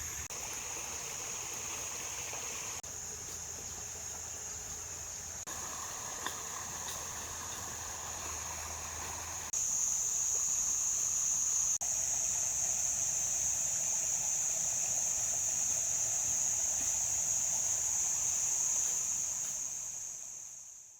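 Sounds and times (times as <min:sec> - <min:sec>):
insects droning: 0:00.0 - 0:20.9.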